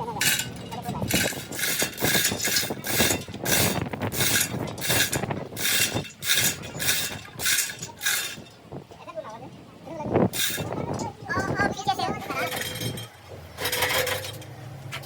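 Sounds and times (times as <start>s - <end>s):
hand tool rasping on metal: 0.2s - 8.4s.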